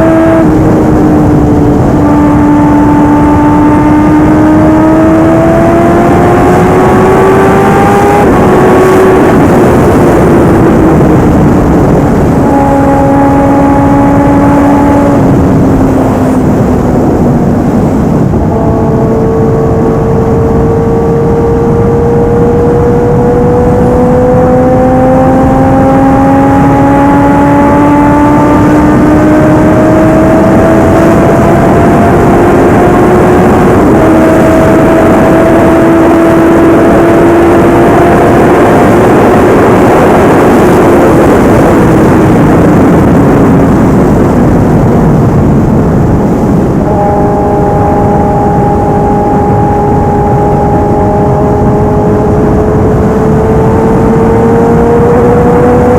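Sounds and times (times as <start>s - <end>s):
motorcycle engine revving: 0.0s - 55.9s
wind noise: 0.0s - 55.9s.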